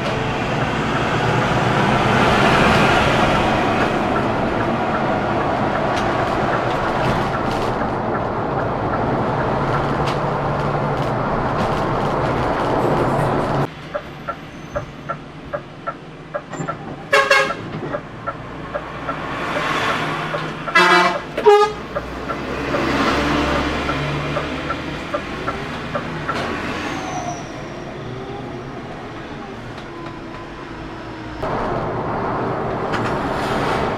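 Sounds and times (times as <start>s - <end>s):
coach road and engine noise: 0.0s - 33.9s
vehicle horn honks: 17.1s - 17.7s, 20.7s - 22.0s.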